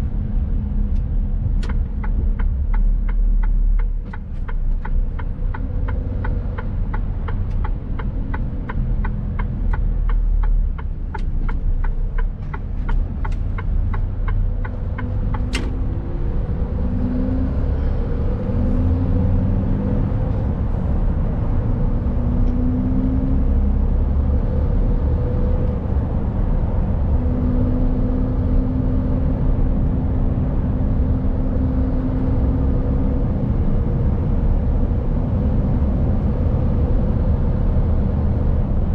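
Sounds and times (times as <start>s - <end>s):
turn signal ticking: 0.8s - 16.7s.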